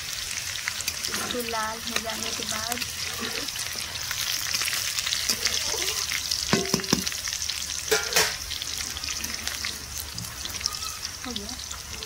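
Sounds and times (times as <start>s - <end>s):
seeds sizzling in hot oil: 0.0s - 12.0s
spatula scraping metal pan: 0.9s - 4.3s.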